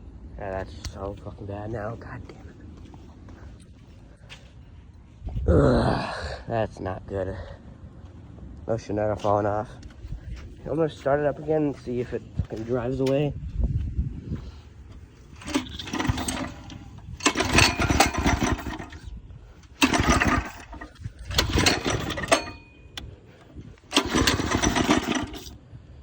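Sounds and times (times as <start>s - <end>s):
small engine pull-starting: 15.3s - 25.7s.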